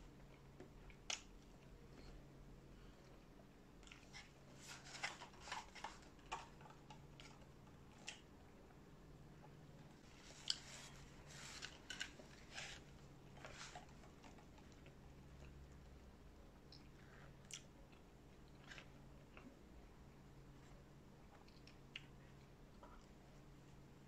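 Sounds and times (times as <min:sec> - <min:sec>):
chewing with wet clicks: 0:16.6 - 0:19.6, 0:21.3 - 0:23.2.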